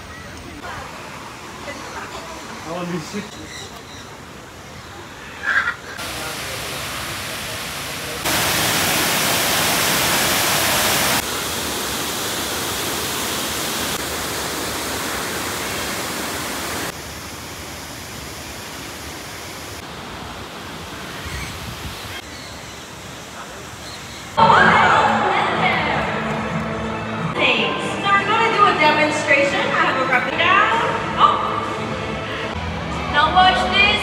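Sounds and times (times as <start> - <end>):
voices: 24.4 - 26.5, 27.4 - 34.0.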